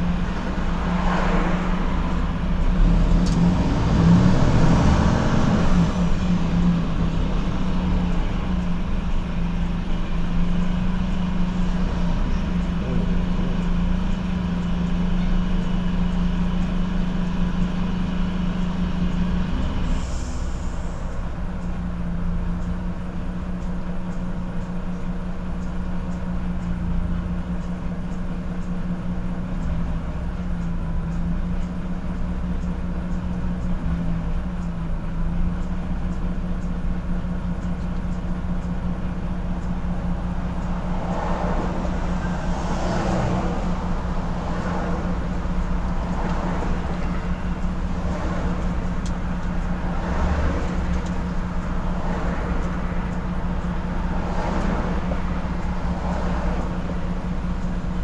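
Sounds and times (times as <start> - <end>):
truck engine running in cab: 0.0 - 58.0
rushing noise: 40.6 - 56.8.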